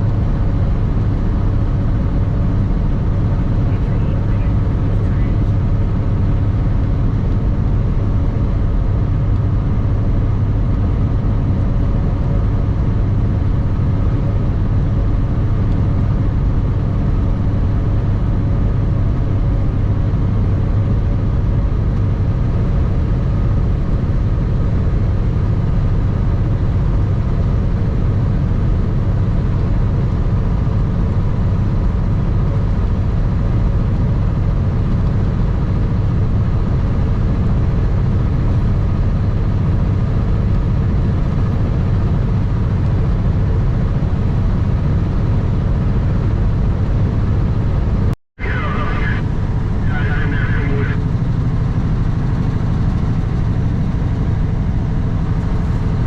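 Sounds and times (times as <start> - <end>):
road noise: 0.0 - 23.8, 36.4 - 56.0
truck diesel engine running: 0.0 - 56.0.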